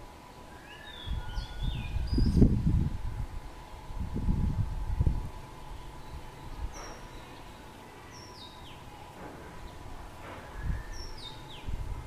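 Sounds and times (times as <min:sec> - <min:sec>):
faint steady whine: 0:00.0 - 0:12.0
small bird whistled calls: 0:00.5 - 0:02.5, 0:05.1 - 0:09.1, 0:09.7 - 0:11.8.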